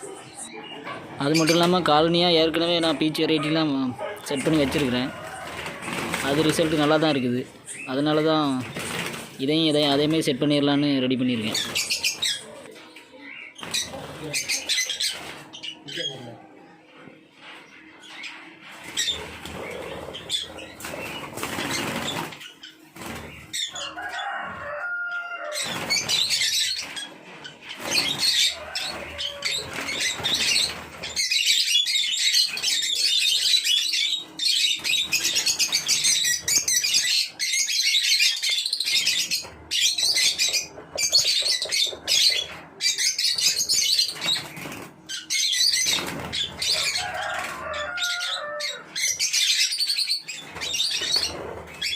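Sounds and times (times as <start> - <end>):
birds chattering and chirping: 0.0 - 51.9
wings flapping: 4.4 - 7.2, 8.2 - 10.2, 13.6 - 15.6, 18.6 - 24.4, 25.5 - 31.4, 38.8 - 48.0, 50.4 - 51.9.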